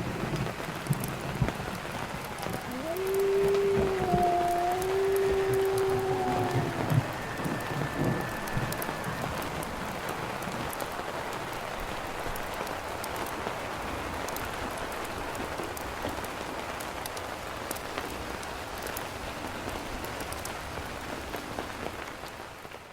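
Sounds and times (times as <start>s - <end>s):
fire popping and ticking: 0.0s - 11.6s
rain hissing on a campfire: 0.0s - 22.9s.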